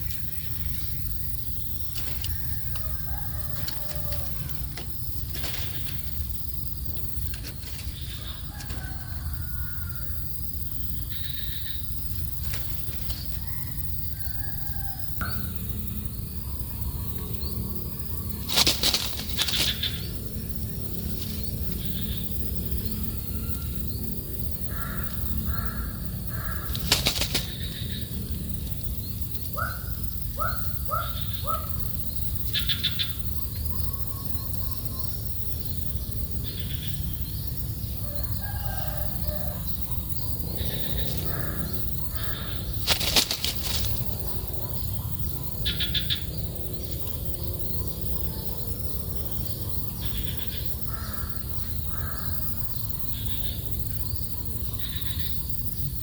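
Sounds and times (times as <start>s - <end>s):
wingbeats fluttering: 0.0s - 15.3s, 17.2s - 31.7s, 38.1s - 51.3s
birds calling: 0.0s - 55.7s
low background noise: 0.0s - 56.0s.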